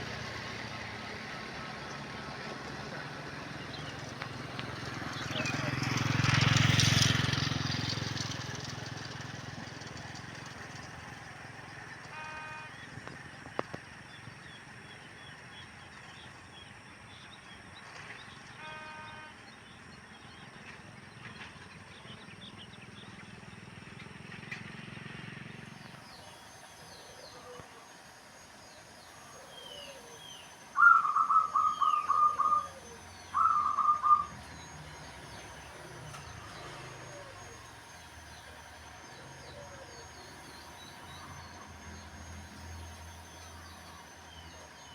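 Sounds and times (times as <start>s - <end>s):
faint high bird chirps: 28.6s - 44.9s
bird rapid repeated notes: 30.8s - 34.7s.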